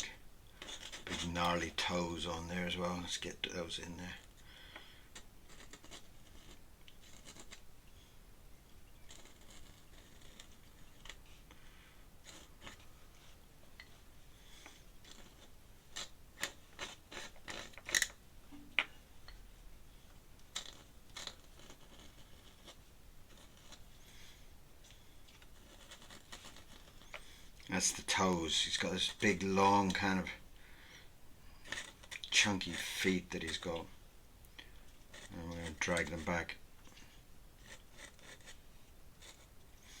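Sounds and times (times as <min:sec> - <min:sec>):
pen nib scratching on paper: 0:00.5 - 0:01.7, 0:05.1 - 0:07.7, 0:09.0 - 0:11.4, 0:12.2 - 0:13.4, 0:14.6 - 0:18.0, 0:20.5 - 0:24.0, 0:24.8 - 0:27.4, 0:31.6 - 0:34.0, 0:34.7 - 0:36.4, 0:37.6 - 0:38.6, 0:39.2 - 0:40.0.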